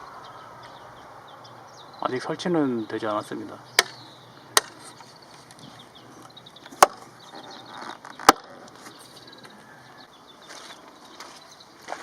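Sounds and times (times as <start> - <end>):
sharp loud knocks: 3.8 - 4.0, 6.8 - 7.1.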